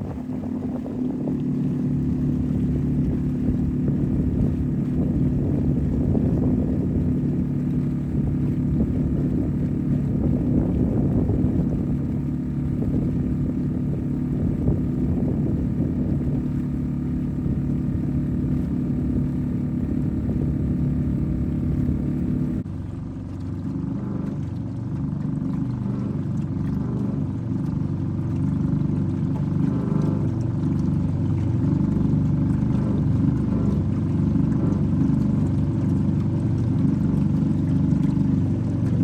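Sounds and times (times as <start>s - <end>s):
wind noise: 0.0s - 22.6s
outboard motor running: 0.0s - 39.0s
water noise: 0.0s - 39.0s.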